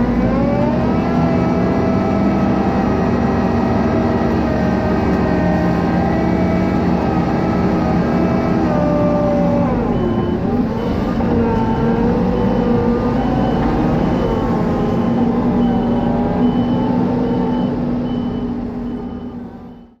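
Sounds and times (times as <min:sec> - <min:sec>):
diesel farm machinery engine running: 0:00.0 - 0:20.0
reversing alarm beeping: 0:09.8 - 0:20.0.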